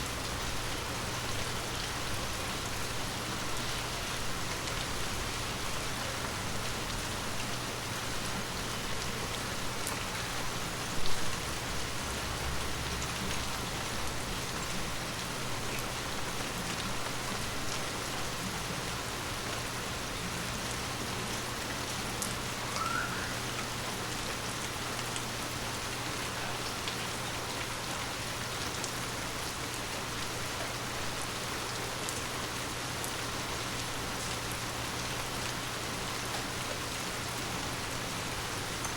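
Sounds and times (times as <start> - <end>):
rain on leaves: 0.0 - 38.9
water drips: 21.8 - 25.4
rising chirp: 22.7 - 23.4.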